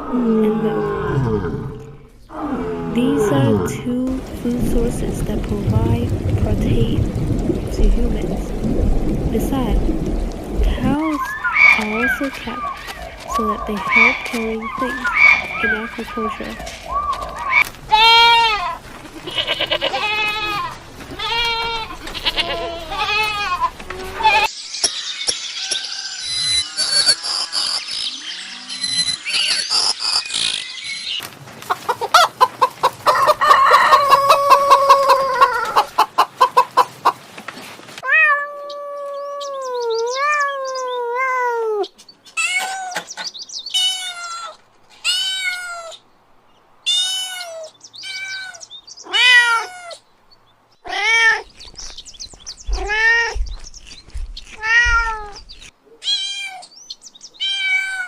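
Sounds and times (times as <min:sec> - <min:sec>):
cat meowing: 0:38.0 - 0:43.0, 0:43.8 - 0:46.0, 0:46.9 - 0:50.0, 0:50.8 - 0:51.5, 0:54.6 - 0:55.4, 0:56.0 - 0:56.7, 0:57.4 - 0:58.0.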